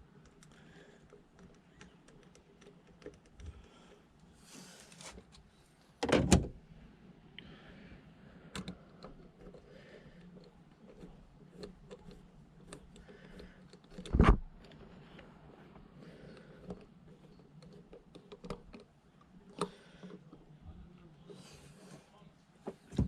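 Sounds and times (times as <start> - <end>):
parts clicking and tapping: 0.0 - 4.0, 8.4 - 20.5.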